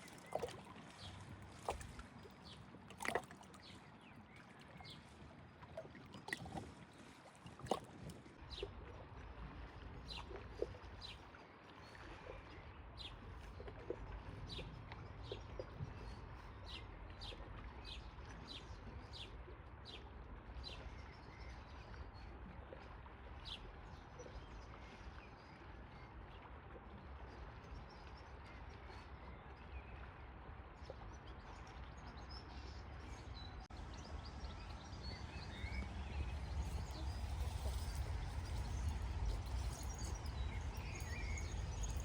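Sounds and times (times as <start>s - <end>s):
low outdoor background: 0.0s - 42.0s
bird chirping: 33.8s - 42.0s.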